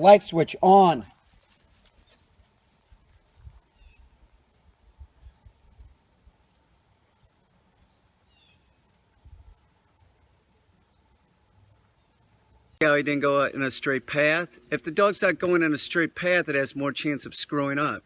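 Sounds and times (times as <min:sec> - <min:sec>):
insect high trill: 0:01.4 - 0:12.4
short insect chirp: 0:01.4 - 0:12.8.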